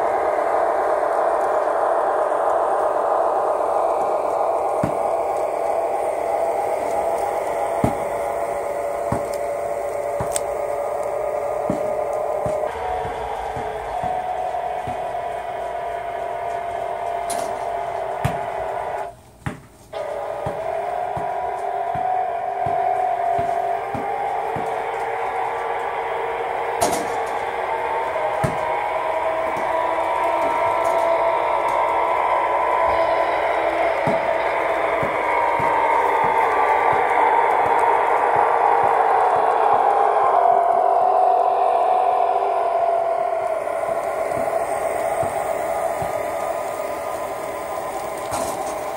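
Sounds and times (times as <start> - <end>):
diesel engine sound from small speaker: 20.0 - 48.9.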